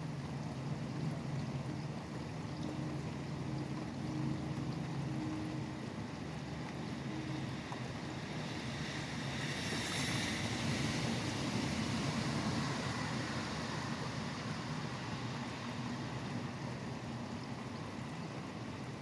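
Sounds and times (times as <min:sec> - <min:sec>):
steady rain: 0:00.0 - 0:19.0
traffic hiss on wet road: 0:02.8 - 0:19.0
vehicle passing: 0:08.2 - 0:16.0.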